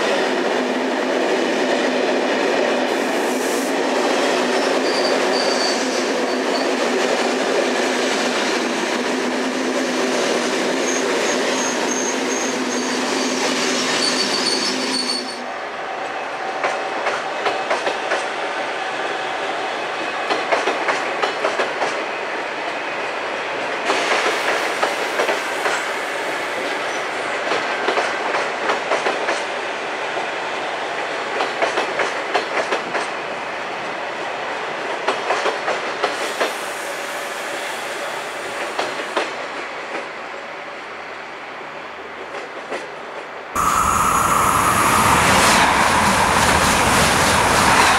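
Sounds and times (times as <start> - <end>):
train rolling rumble: 42.1 - 47.9.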